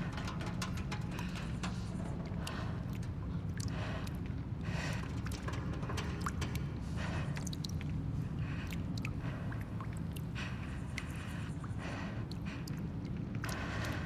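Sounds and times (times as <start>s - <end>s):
small clicks and ticks: 0.0s - 6.7s
steady low rumble: 0.0s - 8.3s.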